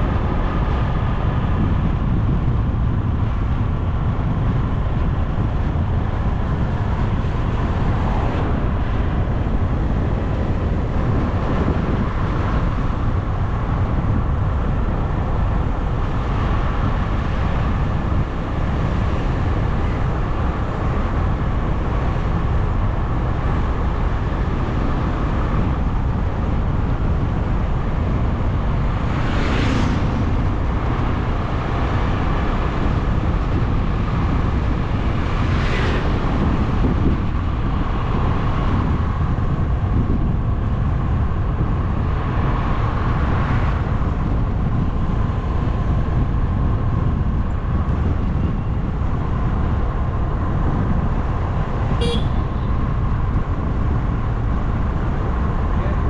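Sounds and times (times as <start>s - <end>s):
wind and road rumble: 0.0s - 56.0s
vehicles swishing past: 14.0s - 56.0s.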